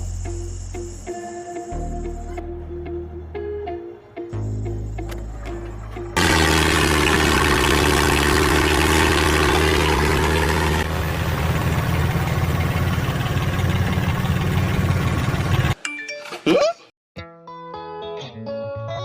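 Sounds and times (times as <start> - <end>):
engine running: 4.7 - 15.8.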